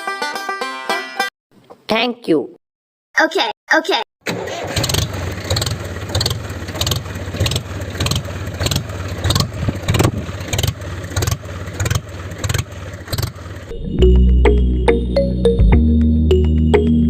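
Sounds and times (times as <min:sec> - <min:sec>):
tractor engine running: 0:04.2 - 0:14.6
sharp engine knock: 0:05.5 - 0:13.5.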